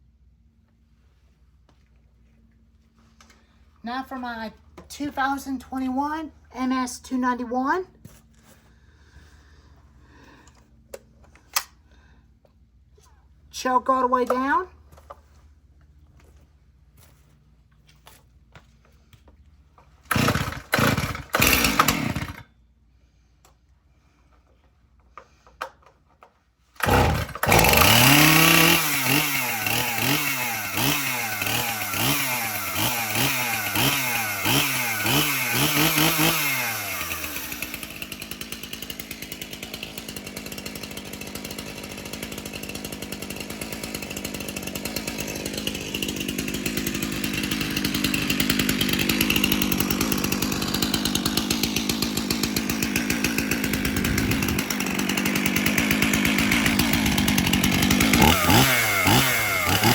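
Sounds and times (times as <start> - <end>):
chainsaw engine revving: 20.1 - 22.5, 26.8 - 59.9.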